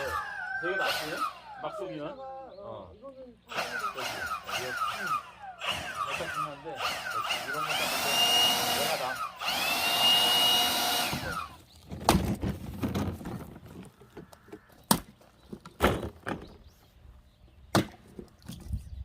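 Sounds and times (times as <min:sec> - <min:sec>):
electric tool motor whine: 0:00.0 - 0:02.1, 0:03.5 - 0:11.8.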